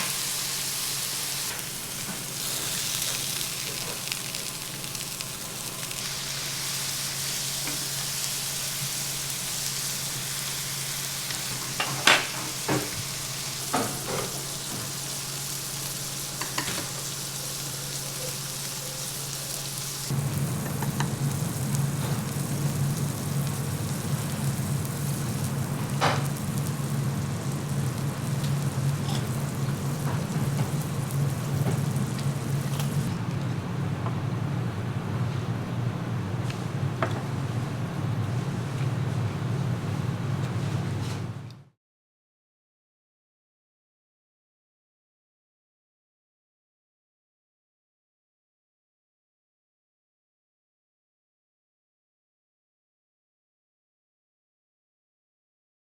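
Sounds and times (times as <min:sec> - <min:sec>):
hissing sizzle: 0:00.0 - 0:33.2.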